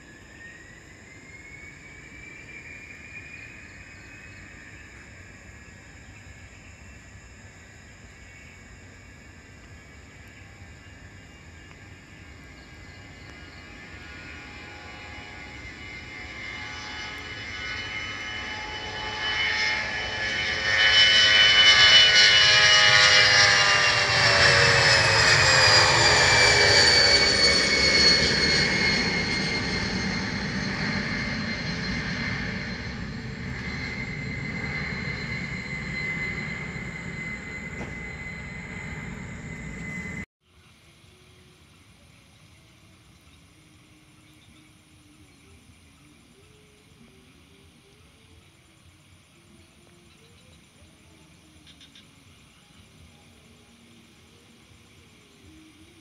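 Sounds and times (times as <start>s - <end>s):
jet aircraft passing: 0.0s - 40.3s.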